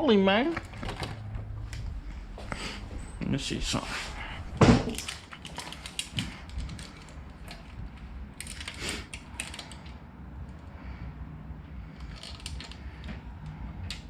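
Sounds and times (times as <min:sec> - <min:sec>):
tools clicking and rattling: 0:04.8 - 0:10.6, 0:11.9 - 0:14.0.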